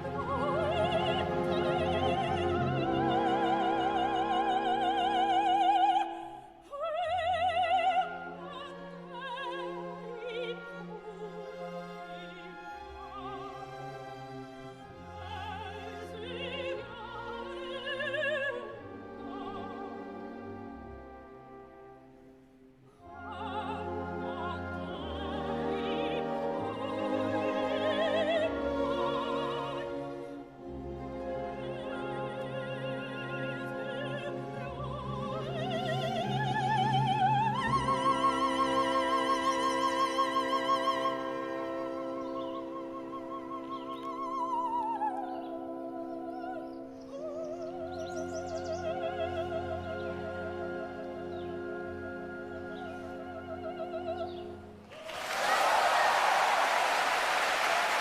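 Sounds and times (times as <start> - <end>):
operatic singing: 0.0 - 20.8, 23.0 - 46.6
orchestral accompaniment: 22.9 - 58.0
orchestra playing: 49.8 - 58.0.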